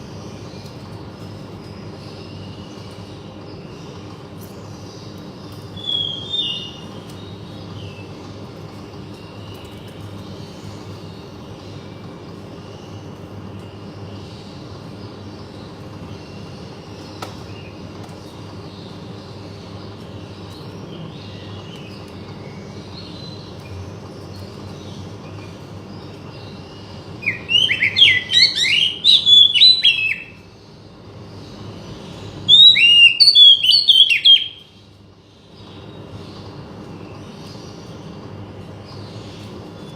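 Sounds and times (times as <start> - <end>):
low background hum: 0.0 - 39.9
bird singing whistled notes: 5.8 - 6.9, 27.2 - 30.4, 32.4 - 34.8.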